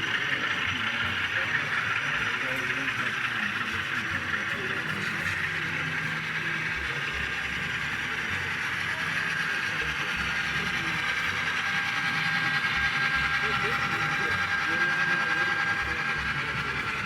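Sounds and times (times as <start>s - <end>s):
model trains running: 0.0s - 17.0s.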